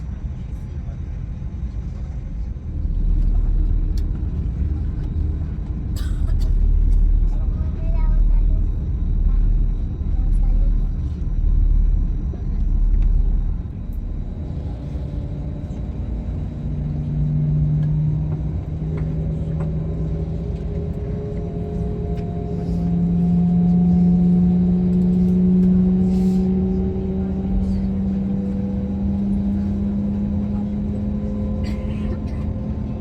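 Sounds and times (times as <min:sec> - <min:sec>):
airliner cabin engine hum: 0:00.0 - 0:33.0.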